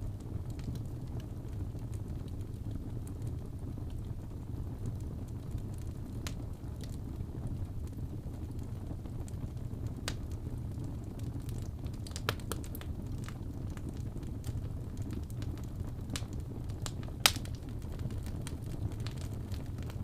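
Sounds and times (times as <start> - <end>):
fire crackling in fireplace: 0.0 - 20.0
fire popping: 0.0 - 20.0.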